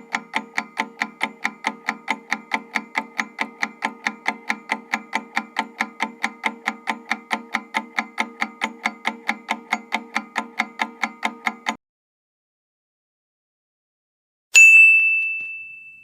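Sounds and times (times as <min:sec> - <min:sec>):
timer ticking: 0:00.0 - 0:11.8.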